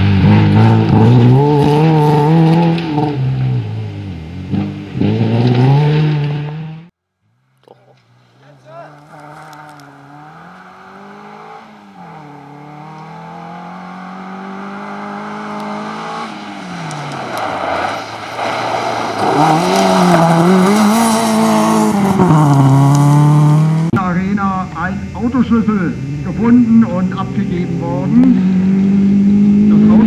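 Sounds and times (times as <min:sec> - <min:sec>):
rally car engine revving: 0:00.0 - 0:06.9, 0:07.9 - 0:30.0
tyres on gravel: 0:07.6 - 0:23.4.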